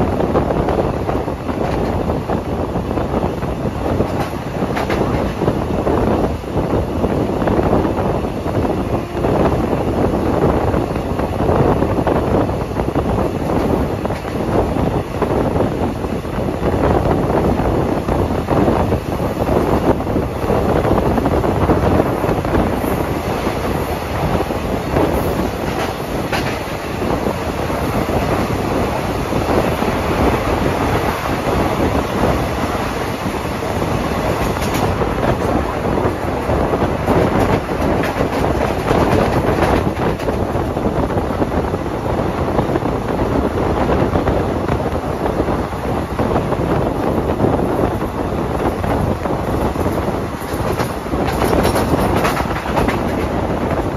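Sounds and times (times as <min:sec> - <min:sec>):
train wheels rumbling on rails: 0:00.0 - 0:53.9
clicks over rail joints: 0:04.0 - 0:05.5, 0:25.1 - 0:26.8, 0:36.4 - 0:40.7, 0:48.7 - 0:53.9.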